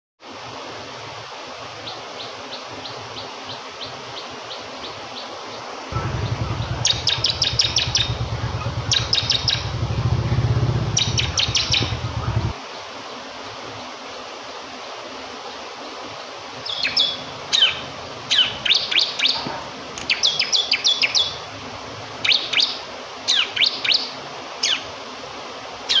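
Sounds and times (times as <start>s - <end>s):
rushing water: 0.2s - 26.0s
bird singing: 5.9s - 12.6s, 16.6s - 19.4s, 20.1s - 21.4s, 22.2s - 24.8s
low pulsing hum: 5.9s - 12.6s.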